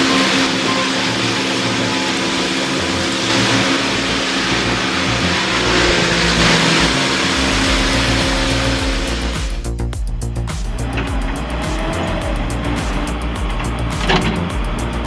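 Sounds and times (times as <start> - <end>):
heavy machine engine revving: 0.0 - 9.8
background music with bass line: 0.0 - 15.0.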